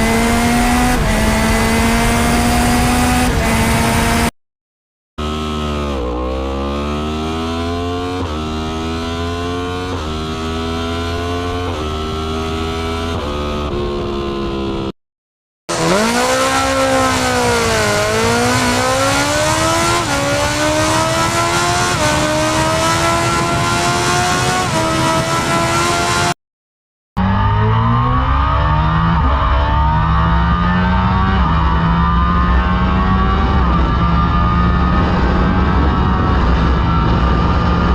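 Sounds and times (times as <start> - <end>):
motorbike engine accelerating through gears: 0.0 - 4.3, 5.2 - 14.9, 15.7 - 26.4, 27.2 - 37.9.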